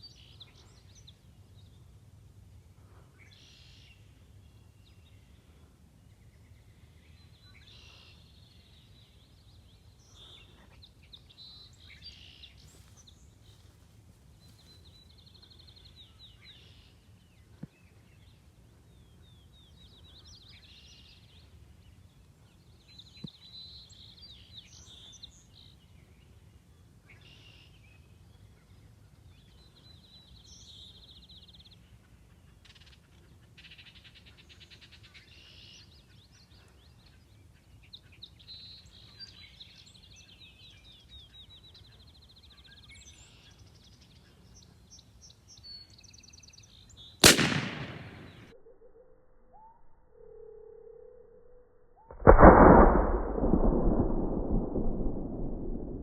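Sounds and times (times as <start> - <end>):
songbirds singing: 0.0 - 50.4
loud shotgun blast: 47.2 - 48.5, 52.1 - 56.0.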